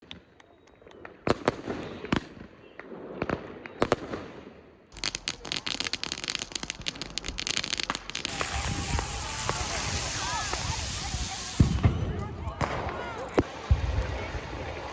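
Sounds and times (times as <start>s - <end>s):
distant firework cracks: 0.0s - 14.9s
fireworks bangs: 1.1s - 14.9s
rapid firework crackling: 4.9s - 14.9s.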